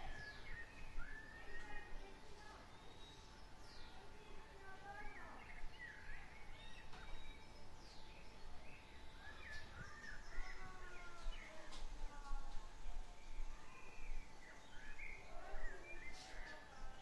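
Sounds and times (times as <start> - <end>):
birds singing and chirping: 0.0 - 17.0
faint low outdoor rumble: 0.0 - 17.0.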